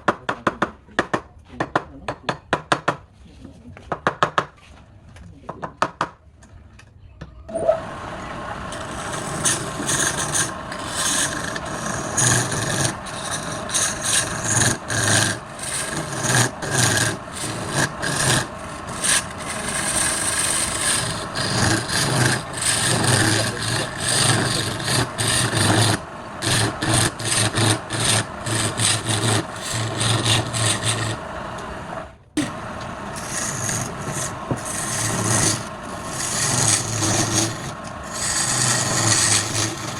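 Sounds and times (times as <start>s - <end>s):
tool scraping spinning wood: 7.6s - 39.9s
wood lathe running: 7.8s - 39.9s.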